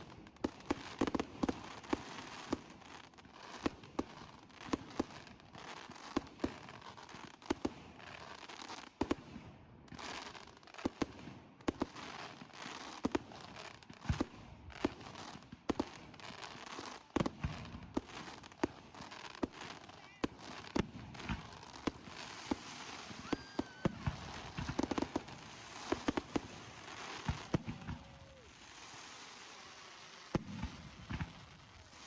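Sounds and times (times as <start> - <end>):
fireworks bangs: 9.0 - 32.0
crackling hiss: 9.9 - 32.0.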